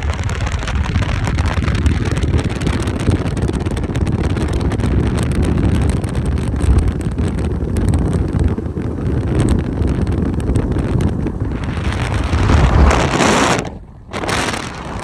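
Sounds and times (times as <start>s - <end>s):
low rumble of moving ride: 0.0s - 15.0s
wind buffeting microphone: 0.0s - 15.0s
hissing rush: 11.4s - 15.0s.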